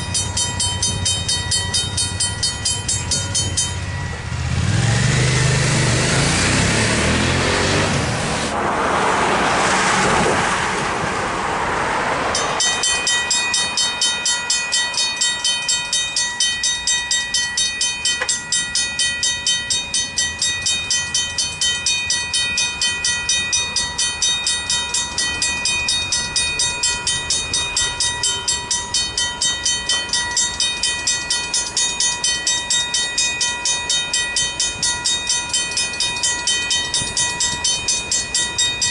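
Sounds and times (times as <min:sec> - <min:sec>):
mechanical crossing bells ringing: 0:00.0 - 0:06.0, 0:12.3 - 0:38.9
train passing: 0:00.0 - 0:38.9.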